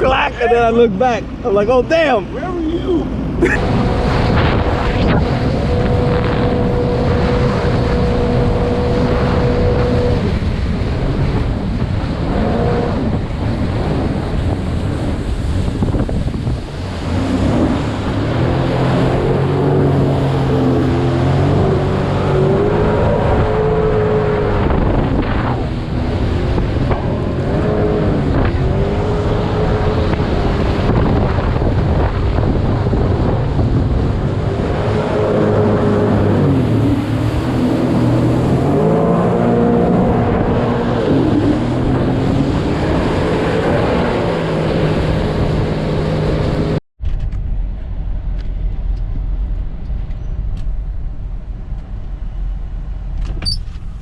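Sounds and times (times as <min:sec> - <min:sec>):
jet ski engine running: 0:00.0 - 0:46.8
water rushing: 0:00.0 - 0:46.8
wind buffeting microphone: 0:00.0 - 0:54.0.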